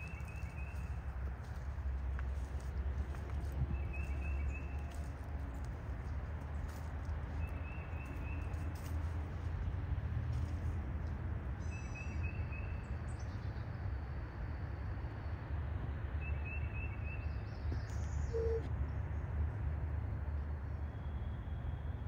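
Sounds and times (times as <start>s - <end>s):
steady low rumble: 0.0s - 12.0s
bird chirping: 16.3s - 18.7s.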